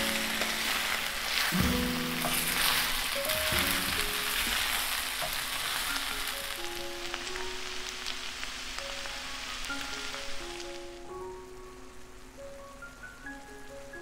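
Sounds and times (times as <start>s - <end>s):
spatula stirring: 0.0s - 6.6s
food sizzling in a skillet: 0.0s - 11.6s
background music with held notes: 0.0s - 14.0s.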